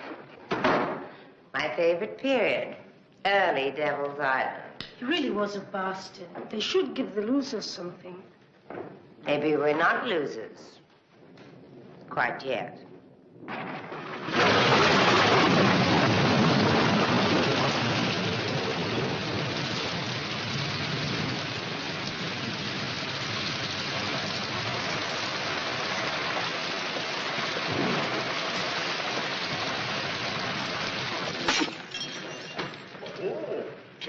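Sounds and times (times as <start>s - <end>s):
heavy rain: 13.4s - 33.0s.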